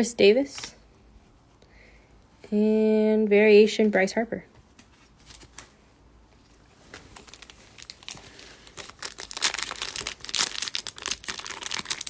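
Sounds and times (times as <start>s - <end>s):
foil wrapper crinkling and tearing: 6.9s - 12.0s.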